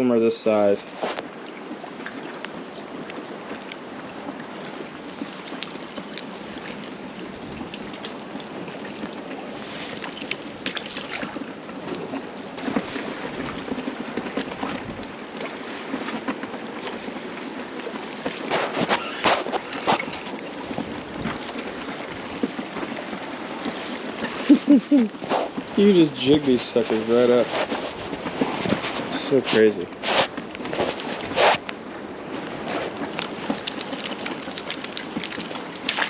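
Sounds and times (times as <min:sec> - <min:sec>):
water lapping against a dock: 0:00.4 - 0:36.0
small clicks and splashes: 0:01.2 - 0:17.1, 0:18.2 - 0:24.8, 0:32.4 - 0:36.0.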